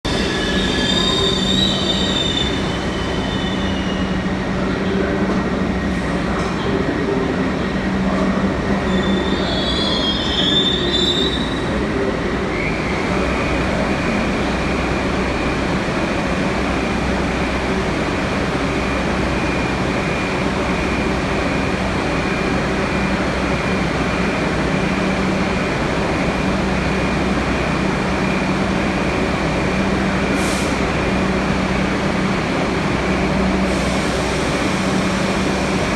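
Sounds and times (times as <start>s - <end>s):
subway train rumble: 0.0s - 35.9s
train wheels squealing: 0.1s - 4.3s, 8.8s - 11.8s.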